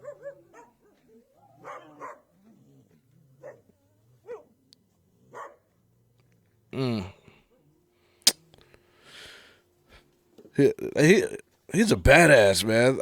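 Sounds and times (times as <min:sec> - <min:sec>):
dogs barking and yelping: 0:00.0 - 0:05.8.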